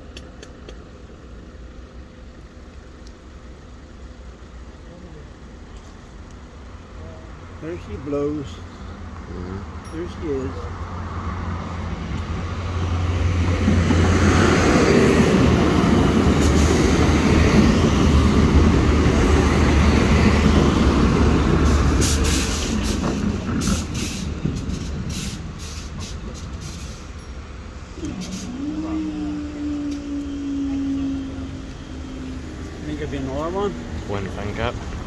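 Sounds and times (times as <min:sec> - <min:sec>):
wheels rumbling on rails: 0:00.0 - 0:35.0
low engine drone: 0:11.8 - 0:35.0.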